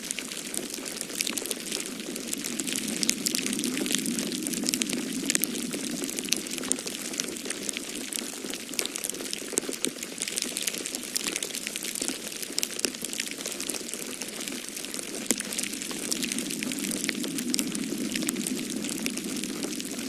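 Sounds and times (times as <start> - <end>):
wood fire crackling: 0.0 - 20.0
snowstorm wind rushing: 1.2 - 7.0, 15.4 - 20.0.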